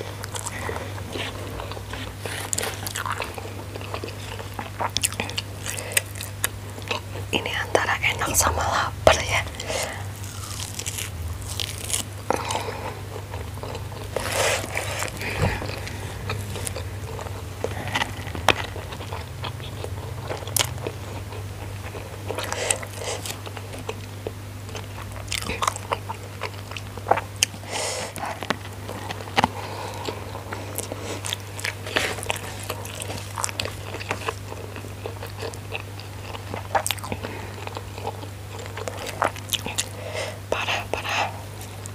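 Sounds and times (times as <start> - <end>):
chewing and crunching food: 0.0 - 41.9
steady low hum: 0.0 - 41.9
crisp crunches and clicks: 9.3 - 12.7.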